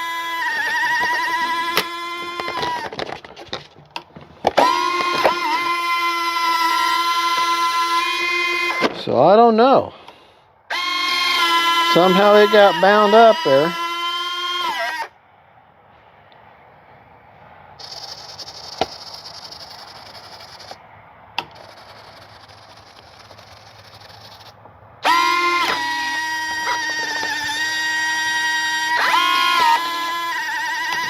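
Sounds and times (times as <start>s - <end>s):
landing gear motor whirring: 0.0s - 3.0s, 4.4s - 9.0s, 10.7s - 15.1s, 17.8s - 20.8s, 21.4s - 31.0s
loud steady pitched buzz: 0.0s - 3.0s, 4.4s - 9.0s, 10.7s - 15.2s, 21.4s - 31.0s.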